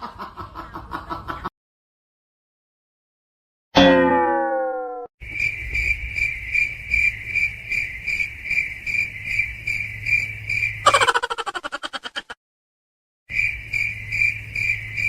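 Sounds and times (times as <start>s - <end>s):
falling tone: 3.8s - 5.1s
crickets chirping: 5.2s - 12.0s, 13.3s - 15.0s.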